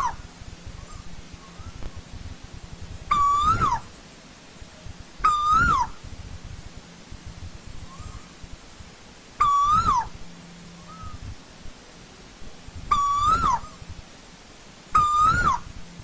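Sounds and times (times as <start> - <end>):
koel whistled call: 3.1 - 3.9, 5.2 - 6.0, 9.4 - 10.1, 12.9 - 13.8, 15.0 - 15.7.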